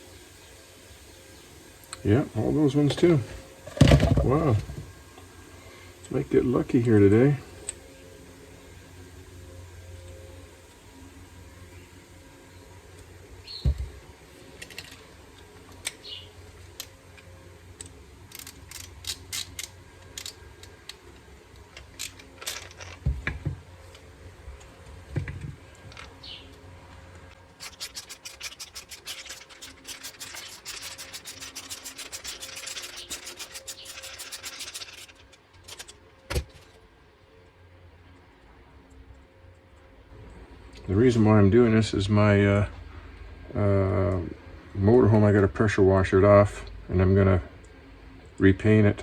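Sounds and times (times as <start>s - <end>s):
small parts clicking and knocking: 14.6s - 15.0s, 17.8s - 21.0s, 21.7s - 23.3s, 27.6s - 36.8s
rapid scrubbing strokes: 27.5s - 35.9s.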